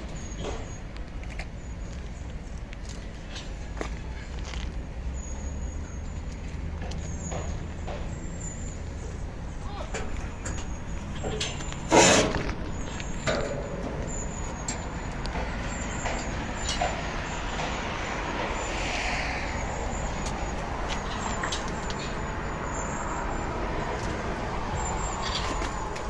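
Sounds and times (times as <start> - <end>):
truck engine running: 5.6 - 26.0.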